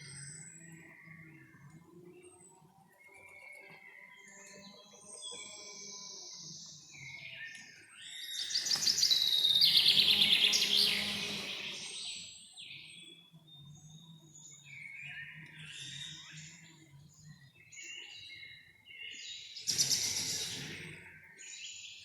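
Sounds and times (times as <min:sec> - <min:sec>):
birds chirping and whistling: 0:05.4 - 0:13.1, 0:19.1 - 0:22.0
bird rapid trilling song: 0:08.1 - 0:13.0, 0:19.6 - 0:21.0.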